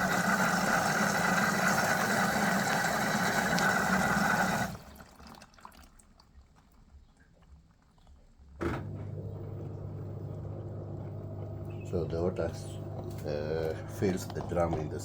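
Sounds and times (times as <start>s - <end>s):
water rushing into washing machine: 0.0s - 7.3s, 8.6s - 15.0s.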